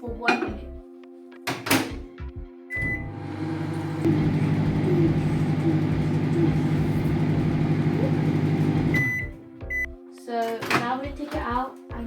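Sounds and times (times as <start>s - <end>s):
microwave oven humming: 2.7s - 9.8s
microwave beep: 2.7s - 9.9s.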